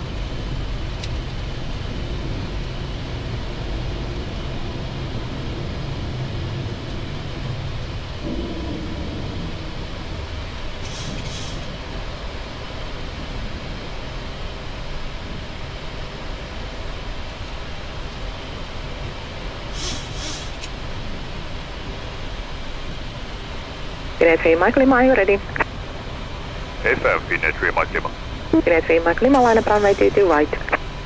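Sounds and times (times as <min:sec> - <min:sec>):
jet engine rumble: 0:00.0 - 0:31.0
short hiss: 0:19.8 - 0:20.7.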